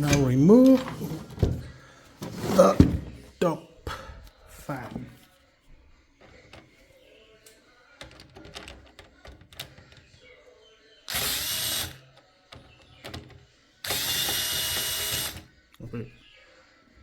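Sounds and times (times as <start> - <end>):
electric screwdriver whirring: 11.1 - 12.0, 13.8 - 15.5.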